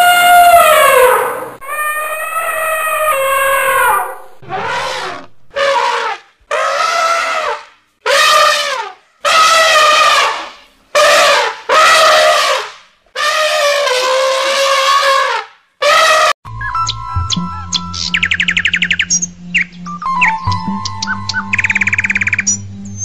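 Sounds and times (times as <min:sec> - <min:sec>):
elephant trumpeting: 0:00.0 - 0:16.3.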